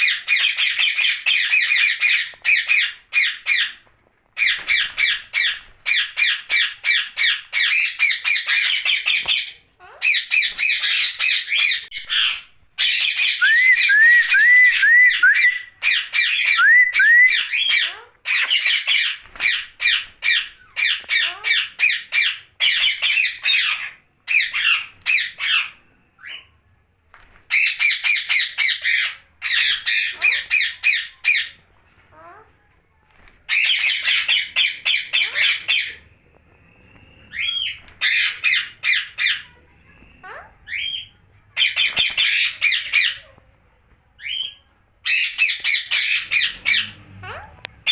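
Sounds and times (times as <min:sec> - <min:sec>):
parakeet screeching calls: 0:00.0 - 0:03.8, 0:04.4 - 0:13.9, 0:15.0 - 0:26.5, 0:27.5 - 0:32.5, 0:33.5 - 0:36.1, 0:37.1 - 0:43.3, 0:44.2 - 0:47.9
upswept whistled notes: 0:13.4 - 0:15.8, 0:36.2 - 0:37.8.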